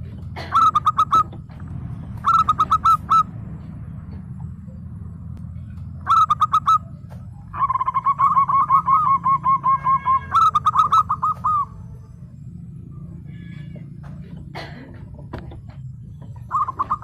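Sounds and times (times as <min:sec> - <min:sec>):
dove cooing rapidly: 0:00.4 - 0:03.3, 0:06.0 - 0:11.9, 0:16.2 - 0:17.0.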